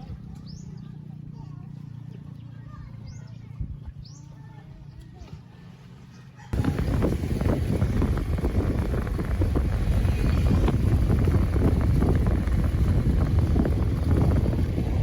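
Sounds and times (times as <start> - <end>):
wind buffeting microphone: 6.5 - 15.0.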